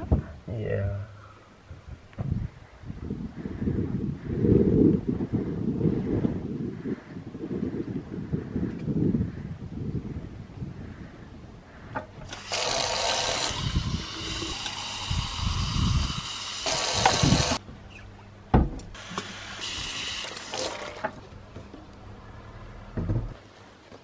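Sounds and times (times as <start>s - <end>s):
tap water running: 12.3s - 17.6s, 19.0s - 21.2s
dull thump: 18.5s - 19.0s, 23.0s - 23.4s.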